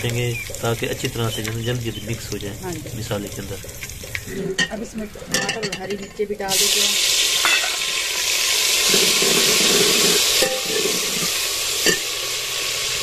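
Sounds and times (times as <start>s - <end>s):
vegetables sizzling in hot fat: 0.0s - 13.0s
metal ladle clinking against pot: 10.4s - 11.0s.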